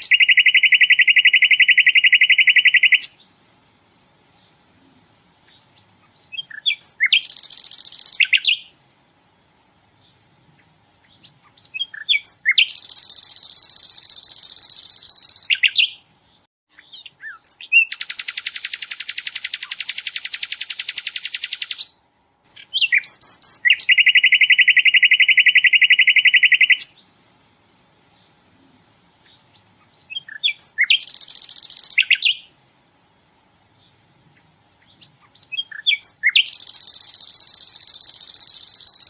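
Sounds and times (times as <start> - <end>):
bird rapid trills: 5.7 - 8.7, 11.2 - 16.0, 16.9 - 21.9, 29.5 - 32.4, 34.9 - 39.0.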